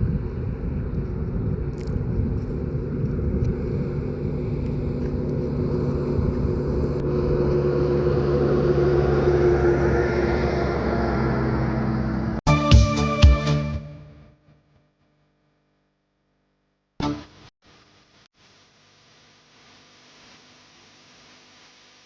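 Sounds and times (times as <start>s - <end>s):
vehicle engine rumble: 0.0s - 12.4s.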